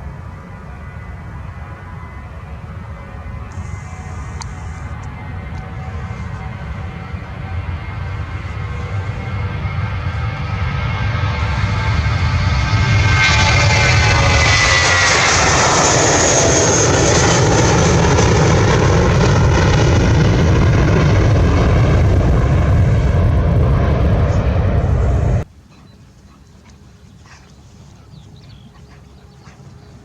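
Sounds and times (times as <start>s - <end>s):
airplane engines roaring: 0.0s - 30.0s
faint outdoor background: 23.0s - 30.0s.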